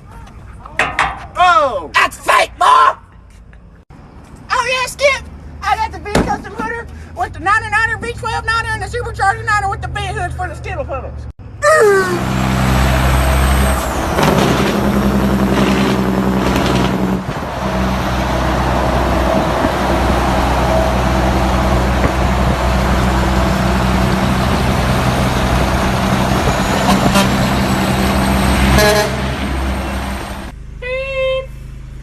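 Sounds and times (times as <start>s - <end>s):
truck engine running: 12.2s - 30.8s.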